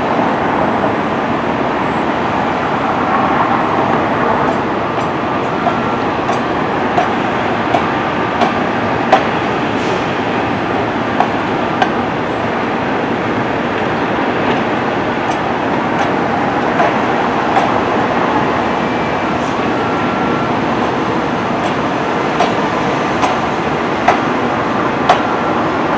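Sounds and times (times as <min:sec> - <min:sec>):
train wheels rumbling on track: 0:00.0 - 0:25.9.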